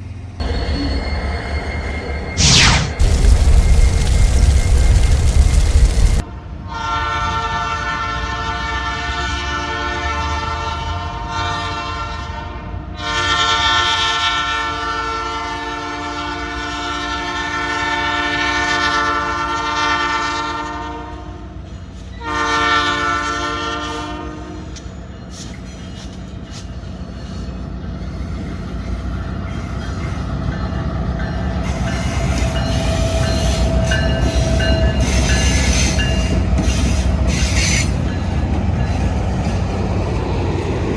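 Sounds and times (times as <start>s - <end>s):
train rumbling by: 0.0s - 40.9s
locomotive air horn blasts: 6.6s - 21.4s, 22.2s - 24.7s
train wheel clatter: 24.6s - 40.9s.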